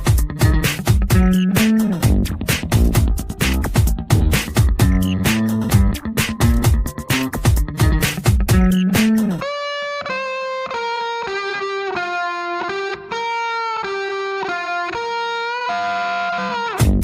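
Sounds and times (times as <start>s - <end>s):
drum hits: 0.0s - 9.2s, 16.8s - 17.0s
electric guitar melody: 0.0s - 17.0s.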